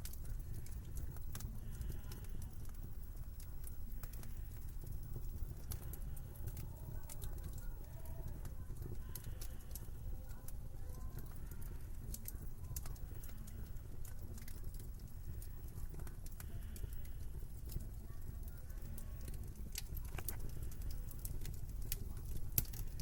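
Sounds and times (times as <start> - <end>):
sharp pops and snaps: 0.0 - 23.0
wood fire crackling: 0.0 - 23.0.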